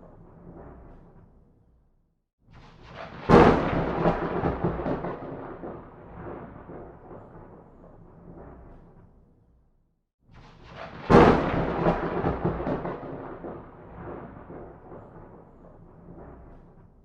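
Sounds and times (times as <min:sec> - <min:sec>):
thunderclap with rolling thunder: 0:02.6 - 0:09.3, 0:10.4 - 0:17.0.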